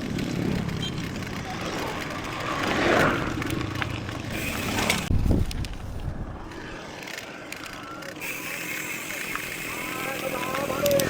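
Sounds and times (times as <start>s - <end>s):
bike rattling on trail: 0.0s - 11.0s
bike hub freewheel ticking: 3.4s - 5.6s, 7.0s - 11.0s.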